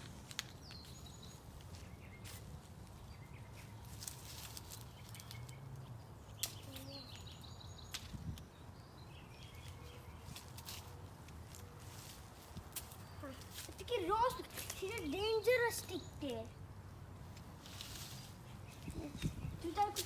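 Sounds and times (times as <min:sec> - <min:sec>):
small bird chirping: 0:04.6 - 0:10.6
low wind rumble: 0:18.2 - 0:20.0.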